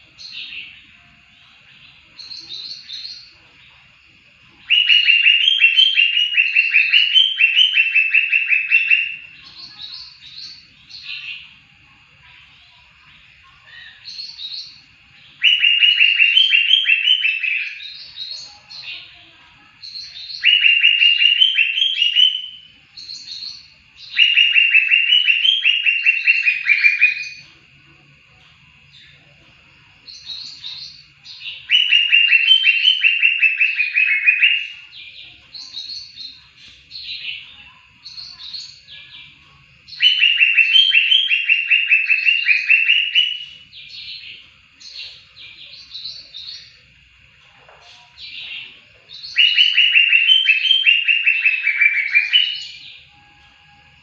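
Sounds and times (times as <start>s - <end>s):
high bird chirping: 0.0s - 3.8s, 4.5s - 11.6s, 12.2s - 28.3s, 30.0s - 47.1s, 47.7s - 54.0s
bird singing trilled phrases: 0.1s - 3.7s, 4.6s - 11.6s, 12.6s - 27.5s, 30.1s - 46.9s, 47.8s - 54.0s.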